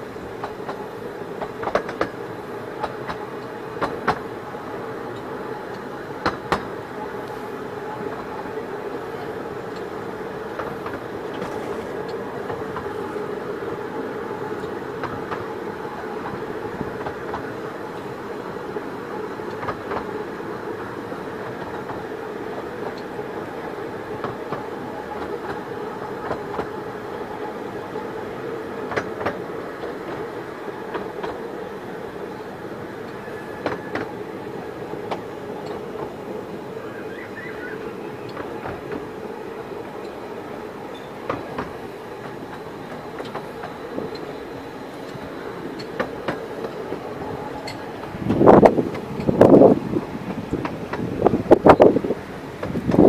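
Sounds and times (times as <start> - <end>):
train carriages rumbling on track: 0.0 - 53.0
sharp track clicks: 1.4 - 4.2, 5.2 - 6.7, 19.5 - 20.1, 37.2 - 39.2, 41.0 - 53.0.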